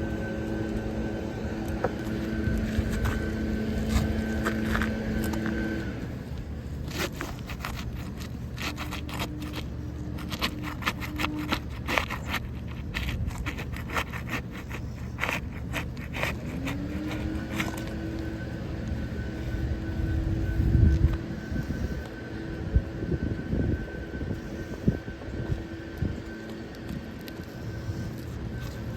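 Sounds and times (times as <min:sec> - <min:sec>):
low engine hum: 0:00.0 - 0:28.9
short scrapes and clicks: 0:01.6 - 0:18.4.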